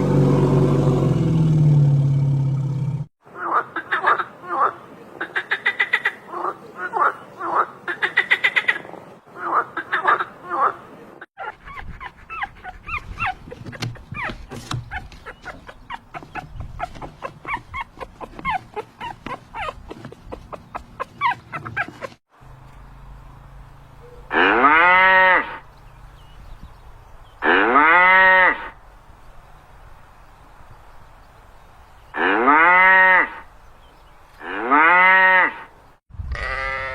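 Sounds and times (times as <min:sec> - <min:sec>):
chorus of chirping calls: 0:11.4 - 0:22.2
cow mooing: 0:36.3 - 0:36.9.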